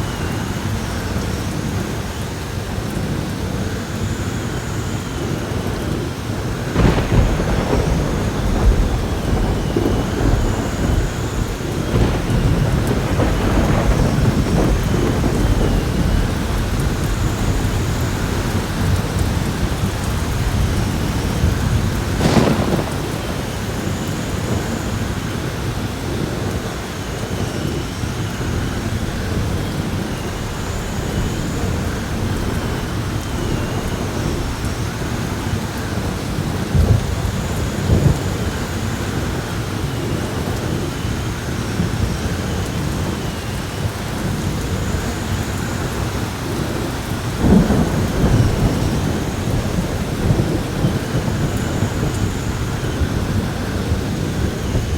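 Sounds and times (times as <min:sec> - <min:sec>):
heavy rain pouring: 0:00.0 - 0:54.9
rolling thunder: 0:05.4 - 0:54.9
sharp thunder crack: 0:06.7 - 0:25.8, 0:28.3 - 0:38.4, 0:46.6 - 0:54.9.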